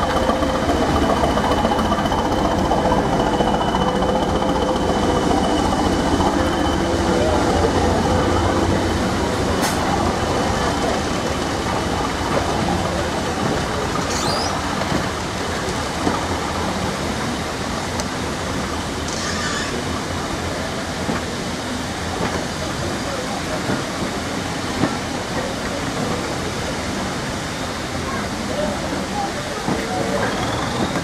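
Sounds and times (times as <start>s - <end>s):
train wheels rumbling on rails: 0.0s - 31.0s
short squeal: 14.0s - 14.7s, 19.1s - 19.9s, 30.2s - 31.0s.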